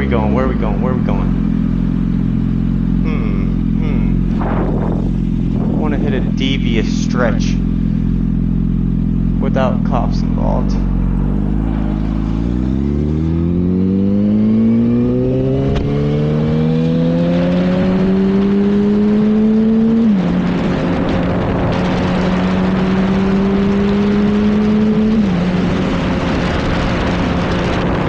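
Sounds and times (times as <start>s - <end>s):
motorcycle engine accelerating: 0.0s - 28.0s
wind rushing over microphone: 3.8s - 7.8s, 10.8s - 28.0s.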